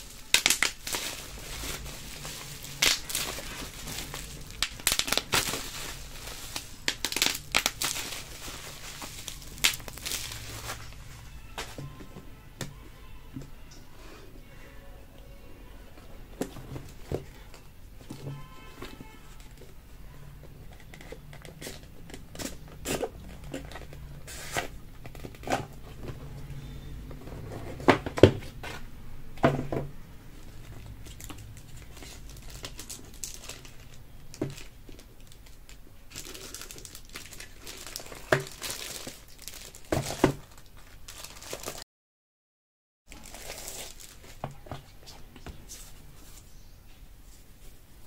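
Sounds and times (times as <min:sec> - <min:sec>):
plastic and paper crinkling: 0:00.0 - 0:13.7, 0:15.9 - 0:19.8, 0:20.4 - 0:26.2, 0:30.4 - 0:41.8, 0:43.1 - 0:46.6.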